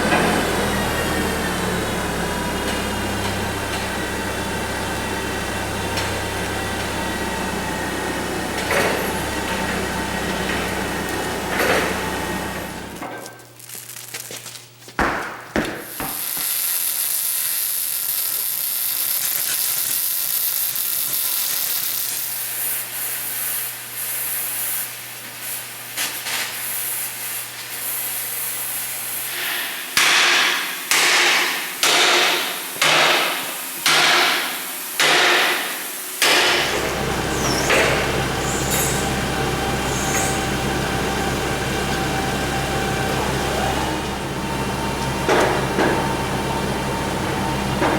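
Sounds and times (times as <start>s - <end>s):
welding sizzle: 0.0s - 14.8s, 15.6s - 47.9s
short welding bursts: 15.8s - 29.8s.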